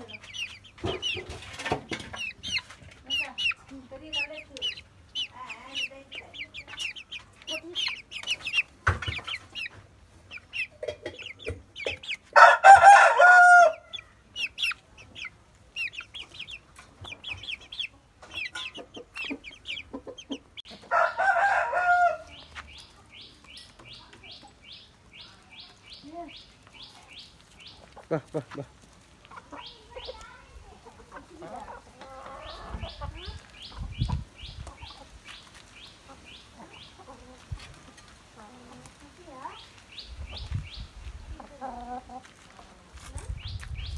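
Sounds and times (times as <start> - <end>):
chicks cheeping: 0.0 - 43.9
rooster crowing: 12.4 - 13.9, 20.9 - 22.3.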